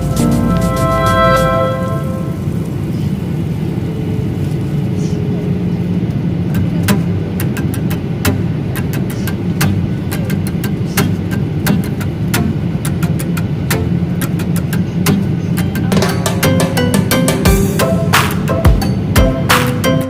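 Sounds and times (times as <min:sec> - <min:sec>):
music: 0:00.0 - 0:02.5, 0:06.8 - 0:20.0.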